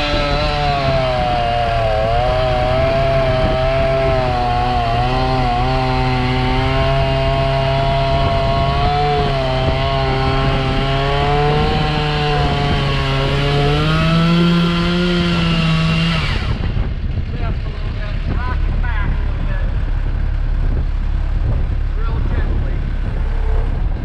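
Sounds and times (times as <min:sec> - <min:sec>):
chainsaw running at high revs: 0:00.0 - 0:18.4.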